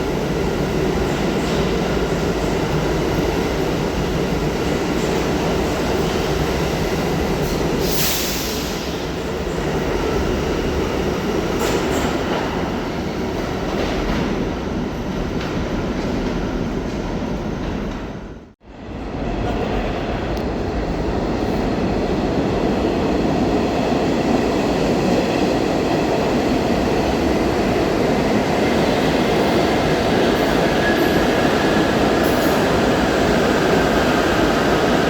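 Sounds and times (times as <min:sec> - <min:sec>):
subway train wheels rumbling on rails: 0:00.0 - 0:35.0.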